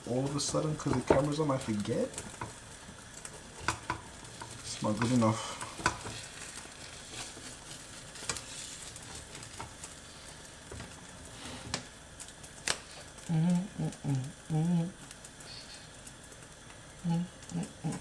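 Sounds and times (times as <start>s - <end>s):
utensil clicking against pan: 0.0s - 11.1s
egg sizzling in a pan: 0.0s - 18.0s.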